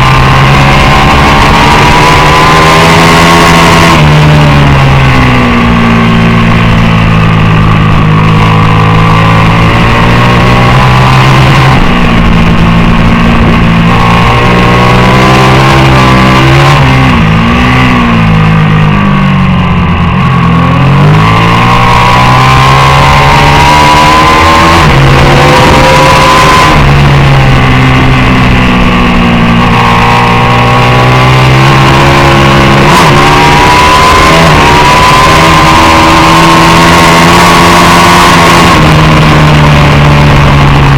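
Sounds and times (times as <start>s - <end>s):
racing motorcycle engine revving: 0.0s - 40.9s.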